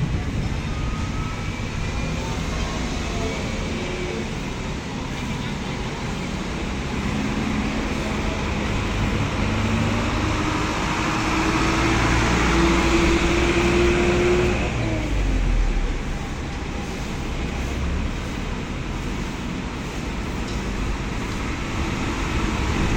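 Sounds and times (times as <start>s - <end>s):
low rumble: 0.0s - 4.6s
vehicle engine passing: 0.0s - 22.9s.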